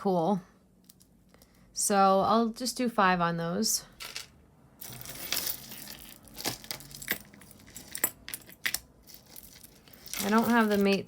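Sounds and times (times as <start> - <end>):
jewelry clicking and clinking: 4.0 - 11.0.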